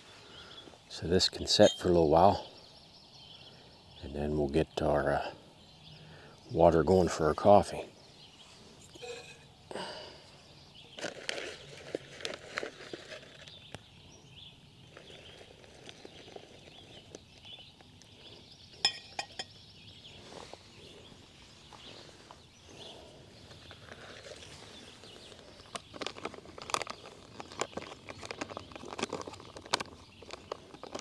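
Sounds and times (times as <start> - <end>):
cooking gear clicks and knocks: 25.6 - 31.0.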